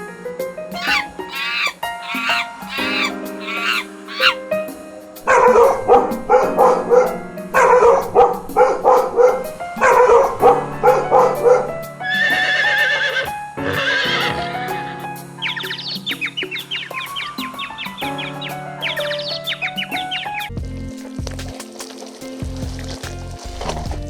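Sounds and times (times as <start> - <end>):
background music: 0.0 - 24.0
quavering animal calls: 0.8 - 4.4.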